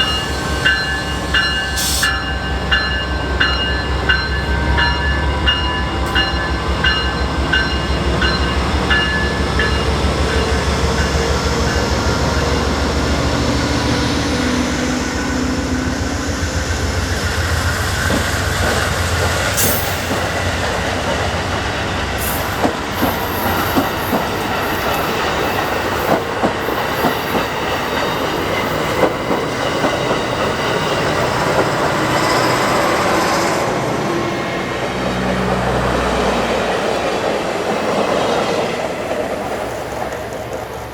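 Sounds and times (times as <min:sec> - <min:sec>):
train wheels squealing: 0:00.0 - 0:21.5, 0:22.1 - 0:34.6
diesel locomotive engine rumble: 0:00.0 - 0:40.9
train wheels clacking over rail joints: 0:17.1 - 0:32.6.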